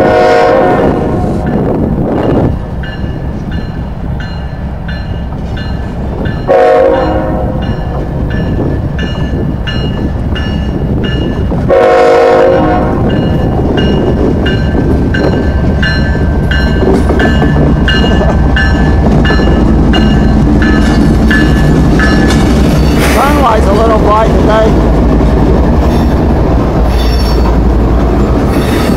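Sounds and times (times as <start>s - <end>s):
train horn blast: 0.0s - 1.4s, 6.5s - 7.7s, 11.7s - 13.1s
diesel locomotives rumbling past: 0.0s - 28.9s
locomotive bell dinging: 1.4s - 11.6s, 12.9s - 24.5s.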